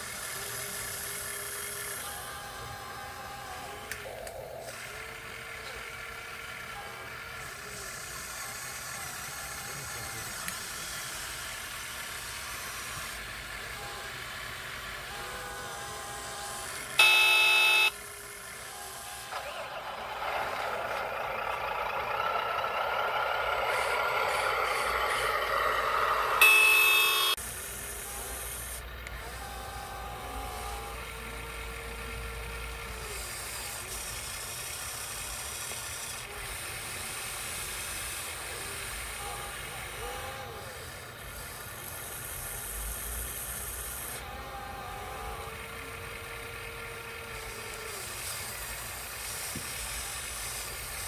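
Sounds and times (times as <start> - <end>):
faint motor whine: 0.0 - 51.0
truck air horn blast: 15.0 - 18.0, 23.7 - 27.4
toy truck running over dirt: 19.2 - 27.4.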